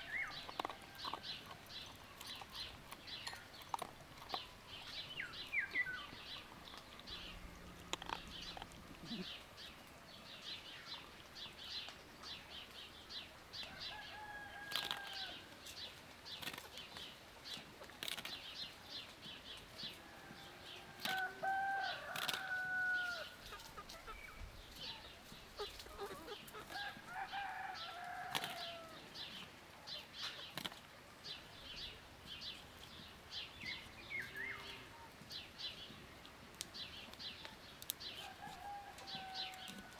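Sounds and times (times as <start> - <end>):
small birds chirping: 0.0 - 39.9
drawn-out bird calls: 21.1 - 29.0.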